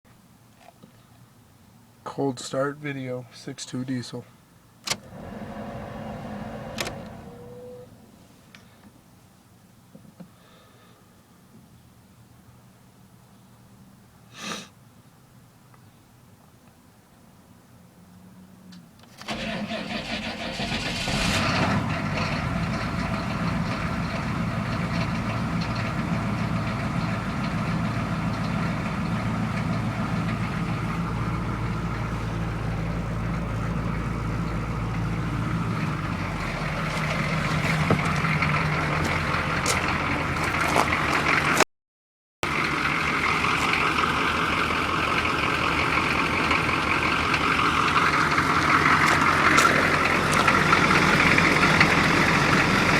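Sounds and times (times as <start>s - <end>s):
diesel engine cranking: 4.8s - 8.8s, 19.0s - 41.6s, 42.4s - 52.9s
diesel engine idling: 4.9s - 8.8s, 19.3s - 41.6s, 42.4s - 52.9s.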